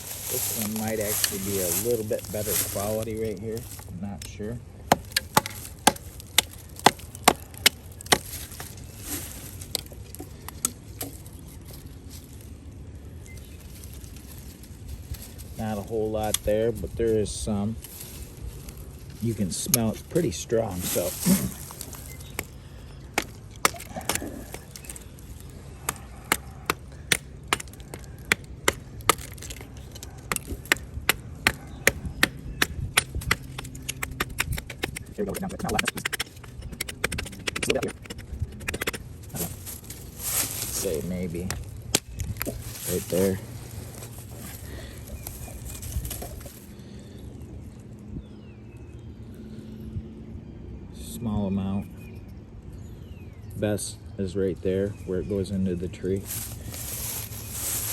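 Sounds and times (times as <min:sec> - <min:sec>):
axe chopping wood: 0:04.8 - 0:08.7, 0:20.9 - 0:25.0, 0:25.8 - 0:39.8.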